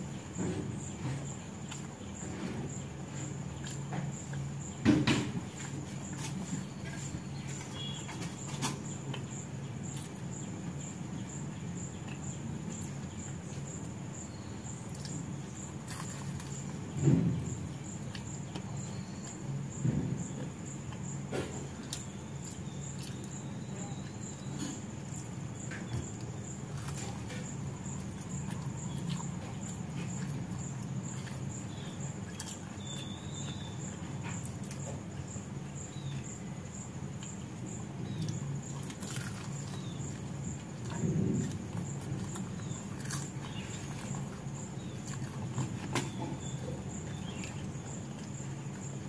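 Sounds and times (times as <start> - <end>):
steady low hum: 0.0 - 49.0
chewing and mouth clicks: 14.6 - 16.9, 20.4 - 36.4, 37.1 - 49.0.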